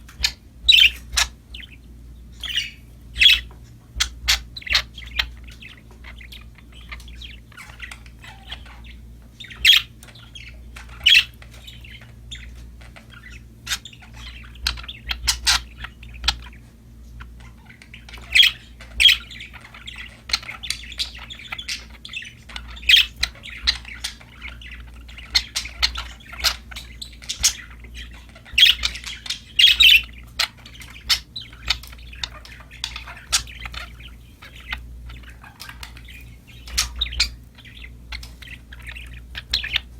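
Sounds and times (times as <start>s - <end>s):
budgerigars chattering and chirping: 0.0s - 39.9s
steady low hum: 0.0s - 39.9s
sharp loud bird squawks: 2.4s - 5.3s.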